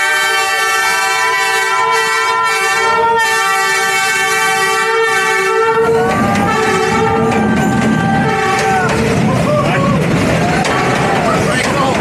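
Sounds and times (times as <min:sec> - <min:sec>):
train horn chord: 0:00.0 - 0:09.0
locomotive engine and wheels: 0:00.0 - 0:12.0.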